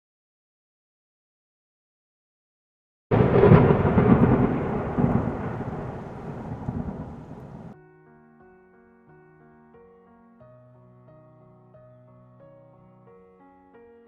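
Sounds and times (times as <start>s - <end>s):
thunder clap rumbling: 3.1s - 7.8s
soft piano music: 5.1s - 14.0s.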